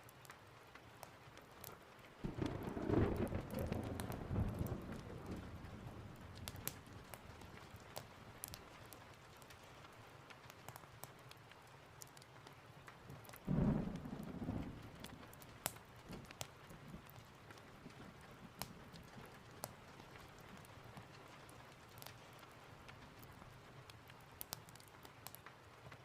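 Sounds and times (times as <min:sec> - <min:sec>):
steady rain: 0:00.0 - 0:26.0
wood fire crackling: 0:00.0 - 0:26.0
thunder: 0:02.2 - 0:07.9, 0:13.5 - 0:17.2.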